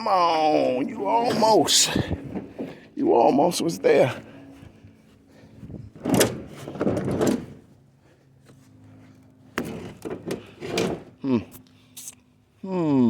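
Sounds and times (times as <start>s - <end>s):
refrigerator scraping and sliding: 9.6s - 11.2s.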